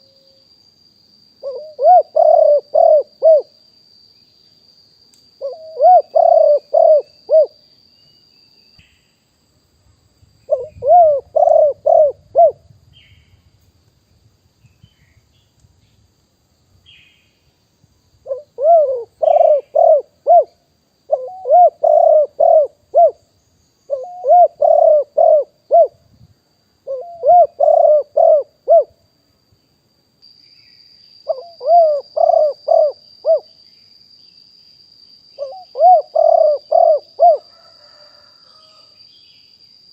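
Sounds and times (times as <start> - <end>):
faint high-pitched whine: 0.0 - 39.9
dove cooing: 1.4 - 3.5, 5.4 - 7.6, 10.5 - 12.7, 18.2 - 23.2, 23.9 - 26.0, 26.8 - 28.9, 31.3 - 33.5, 35.4 - 38.8.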